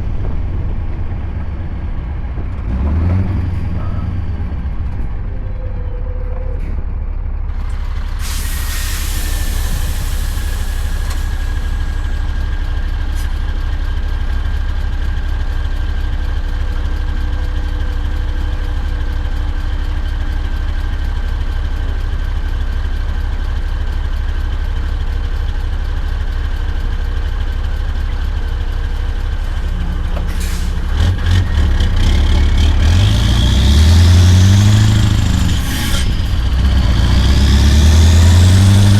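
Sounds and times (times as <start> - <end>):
diesel truck engine idling: 0.0 - 38.9
air brakes hissing: 8.0 - 12.4, 30.2 - 31.0, 34.8 - 36.7.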